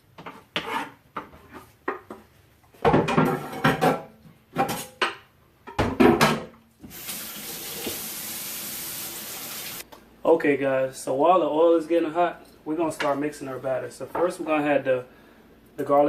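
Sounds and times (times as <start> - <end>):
dishes clattering on counter: 2.8 - 6.6
kitchen tap running: 6.8 - 9.8.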